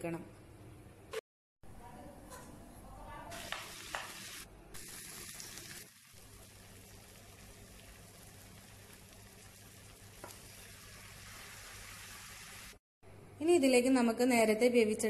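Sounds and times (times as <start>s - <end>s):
vegetables sizzling in oil: 3.3s - 12.8s
wooden spatula tapping and scraping: 3.4s - 4.2s, 10.2s - 10.5s.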